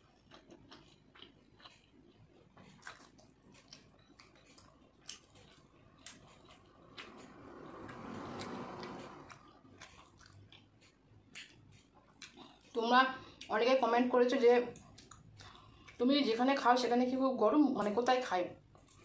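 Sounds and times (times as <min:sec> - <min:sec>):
chewing with mouth clicks: 0:00.0 - 0:13.8, 0:14.4 - 0:16.4, 0:18.7 - 0:19.0
soft rushing sound: 0:06.6 - 0:09.5.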